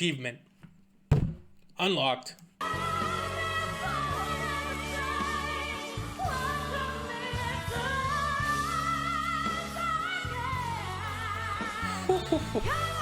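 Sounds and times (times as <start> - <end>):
woman singing a pop ballad: 2.6 - 13.0.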